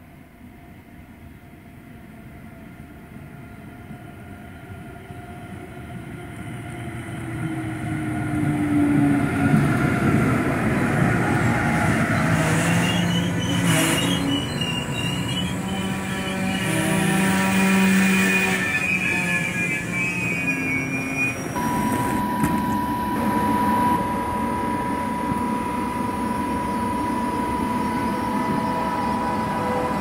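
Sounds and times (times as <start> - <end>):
train passing by: 0.0 - 30.0
high wheel squeal: 10.8 - 30.0.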